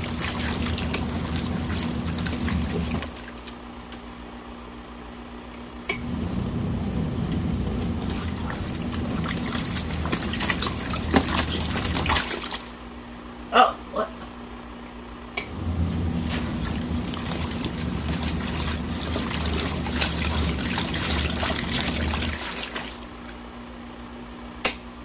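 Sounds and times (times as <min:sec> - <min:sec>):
water sloshing in tub: 0:00.0 - 0:03.7, 0:07.2 - 0:13.0, 0:15.5 - 0:23.4
washing machine motor: 0:00.0 - 0:04.0, 0:05.9 - 0:12.9, 0:15.4 - 0:23.4.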